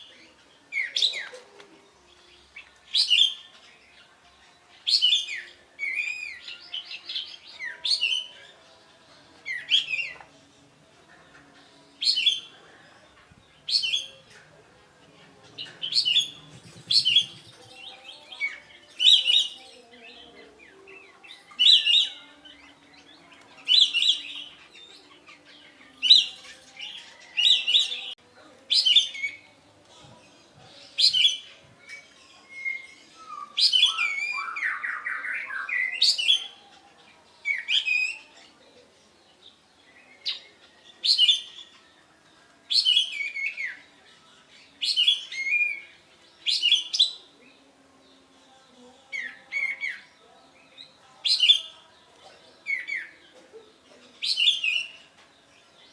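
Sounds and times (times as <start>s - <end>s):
songbird singing whistled phrases: 4.8s - 8.4s, 15.8s - 19.8s, 31.0s - 36.6s, 40.0s - 41.8s, 42.7s - 43.9s, 44.8s - 47.3s.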